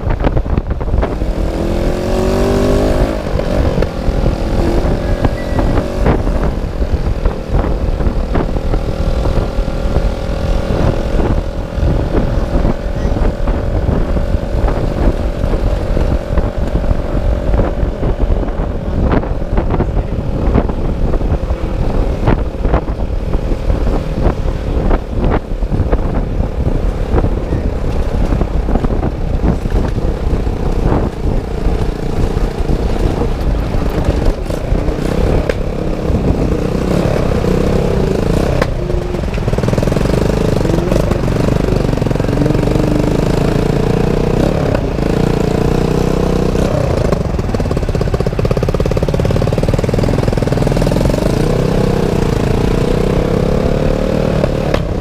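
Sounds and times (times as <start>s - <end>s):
motorcycle engine running: 0.0s - 55.0s
wind rumble on microphone: 0.0s - 55.0s.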